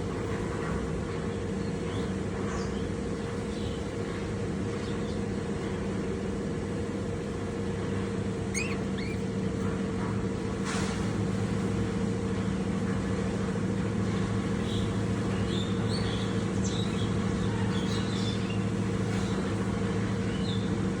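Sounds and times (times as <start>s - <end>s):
low mechanical hum: 0.0s - 21.0s
lovebirds chirping: 8.5s - 9.3s.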